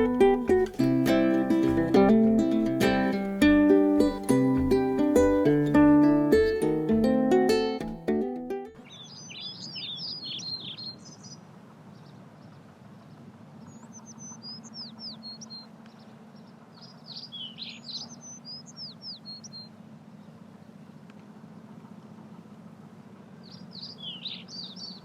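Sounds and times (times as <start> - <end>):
songbird chirping and whistling: 8.8 - 11.4, 13.8 - 15.6, 17.1 - 19.7, 23.5 - 25.0.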